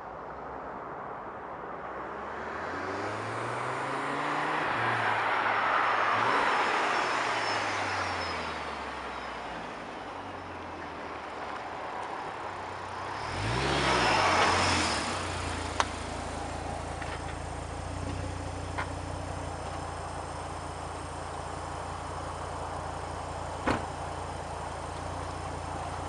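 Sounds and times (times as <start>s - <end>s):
car engine revving and idling: 12.4s - 26.0s.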